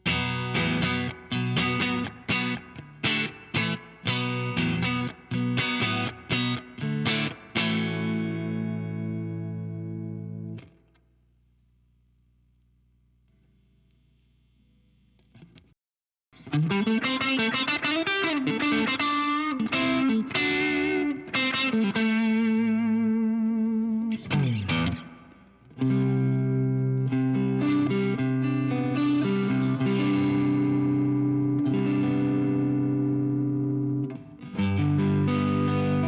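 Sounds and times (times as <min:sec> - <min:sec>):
overdriven electric guitar: 0:00.0 - 0:11.0, 0:16.4 - 0:36.0.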